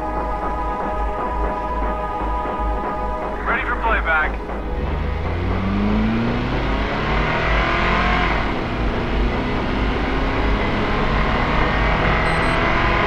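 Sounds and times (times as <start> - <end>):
car engine accelerating hard: 4.5 - 13.0.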